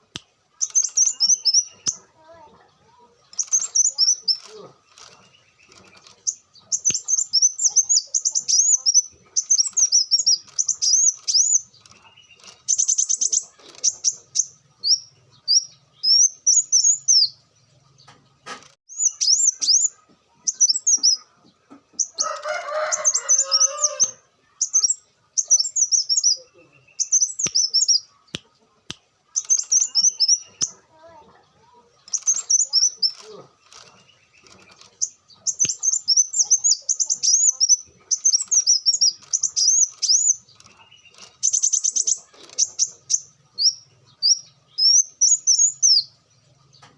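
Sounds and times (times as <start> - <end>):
sunbird singing: 0.0 - 46.9.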